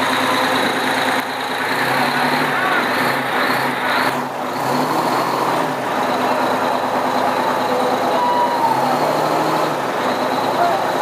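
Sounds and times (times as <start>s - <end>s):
fire engine idling: 0.0s - 11.0s.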